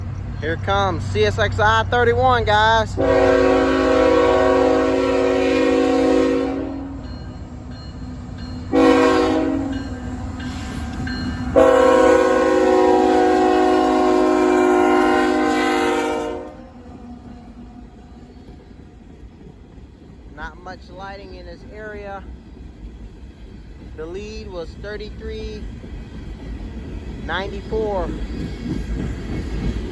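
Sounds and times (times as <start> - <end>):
train rumble: 0.0 - 29.9
locomotive air horn blasts: 3.0 - 7.0, 8.7 - 9.8, 11.6 - 16.8.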